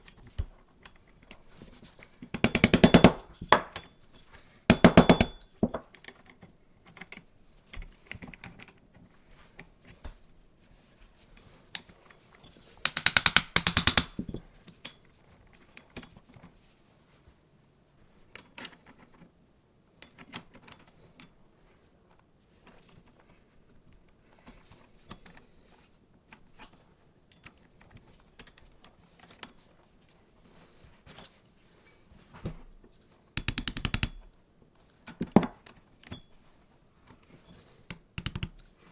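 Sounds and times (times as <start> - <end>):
small clinks and taps on metal: 2.3 - 6.1, 11.8 - 15.1, 33.4 - 34.3, 37.5 - 38.7
rapid ratcheting clicks: 2.4 - 3.2, 12.9 - 14.2, 33.4 - 34.2.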